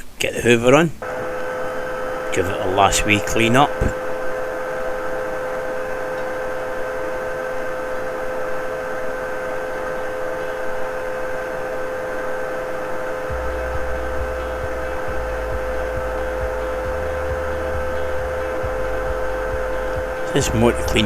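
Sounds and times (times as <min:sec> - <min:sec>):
vacuum cleaner motor whine: 0:01.0 - 0:21.0
low rumble: 0:13.3 - 0:21.0.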